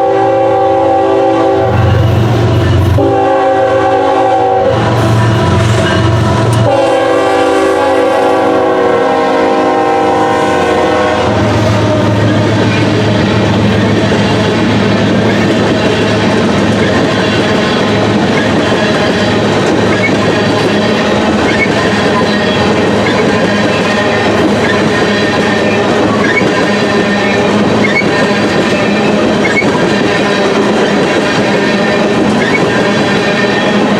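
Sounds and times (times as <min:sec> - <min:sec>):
locomotive air horn: 0:00.0 - 0:14.8, 0:20.2 - 0:33.9
train wheels on rails clacking: 0:09.3 - 0:33.9.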